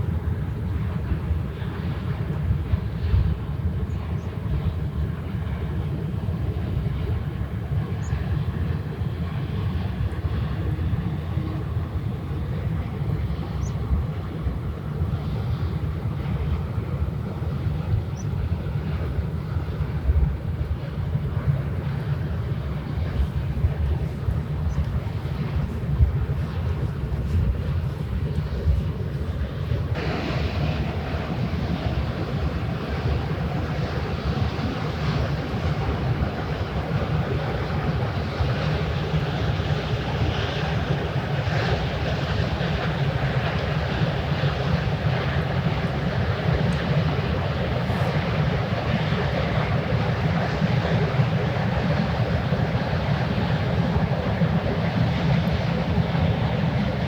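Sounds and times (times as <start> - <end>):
ship engine drone: 0.0 - 57.0
wind: 0.0 - 57.0
water noise: 8.6 - 57.0.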